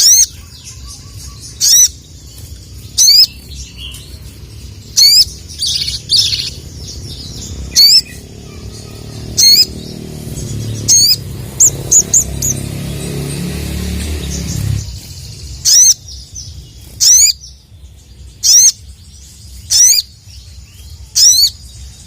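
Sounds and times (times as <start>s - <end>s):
bird giving sharp high-pitched calls: 15.6s - 16.0s.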